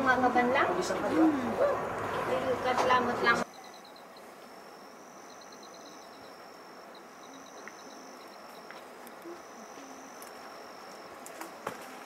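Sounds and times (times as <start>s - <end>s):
insects trilling: 3.3s - 12.0s
quick insect chirps: 3.4s - 12.0s.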